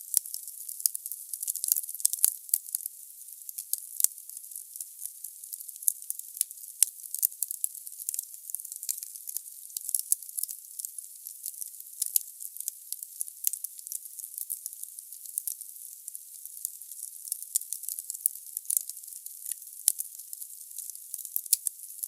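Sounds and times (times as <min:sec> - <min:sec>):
burning logs crackling and popping: 0:05.6 - 0:22.0.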